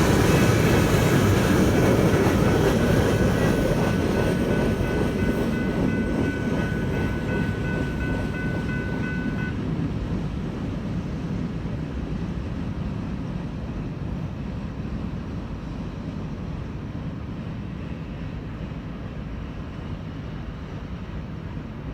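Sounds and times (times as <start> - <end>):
crossing bell ringing: 0.0 - 9.7
freight train rumbling past: 0.0 - 21.9.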